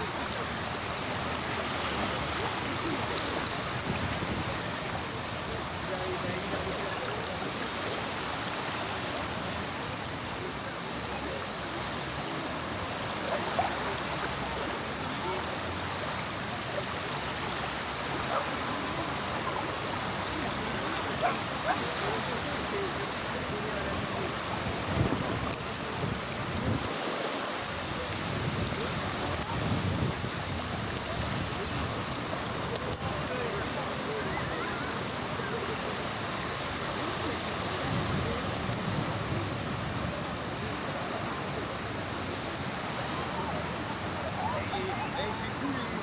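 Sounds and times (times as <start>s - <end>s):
sea waves washing: 0.0s - 46.0s
water rushing: 0.0s - 46.0s
wind rumbling on microphone: 0.0s - 46.0s.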